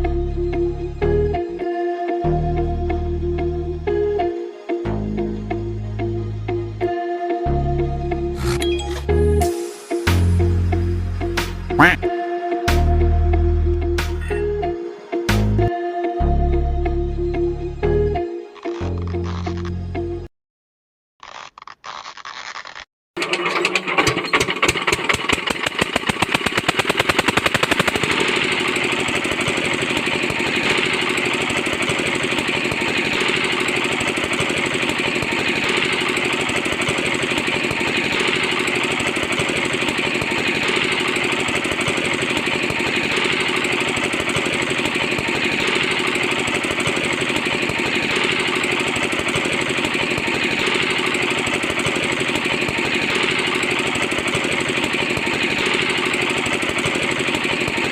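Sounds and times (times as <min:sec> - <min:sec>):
small engine rattling: 0:21.2 - 0:57.9.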